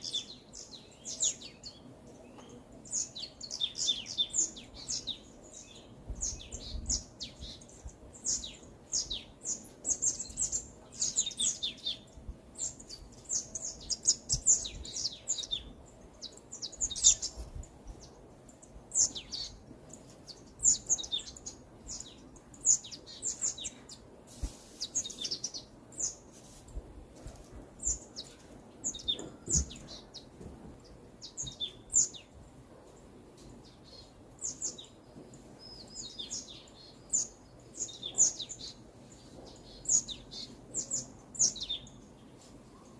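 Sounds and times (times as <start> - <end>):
songbirds chirping and twittering: 0.0 - 42.9.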